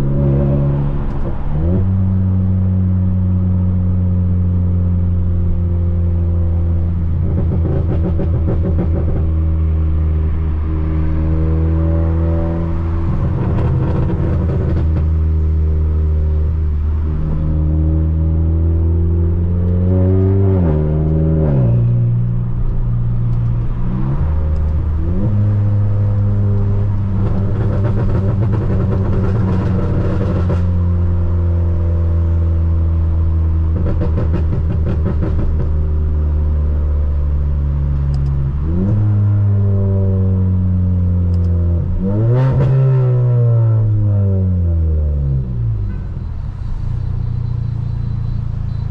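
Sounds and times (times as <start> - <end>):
car engine through sports exhaust: 0.0 - 48.9
exhaust crackling: 11.4 - 32.7.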